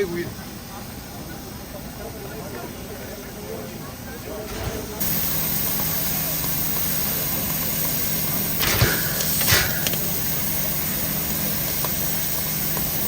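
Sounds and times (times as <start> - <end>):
locomotive mechanical hum: 0.0 - 13.0
short bursts of hiss: 5.0 - 13.0.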